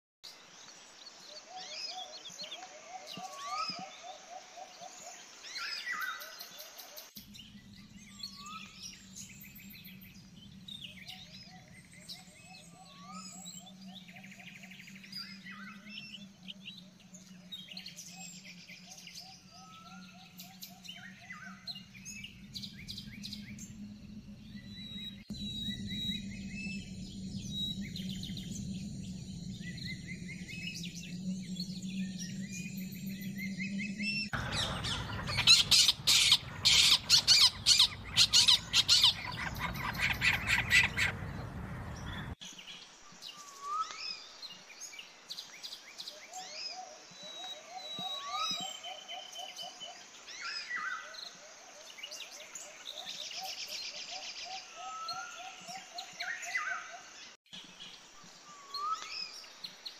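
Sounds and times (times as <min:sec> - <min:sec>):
wild birds chirping: 0:00.3 - 0:59.9
steady low hum: 0:21.5 - 0:42.4.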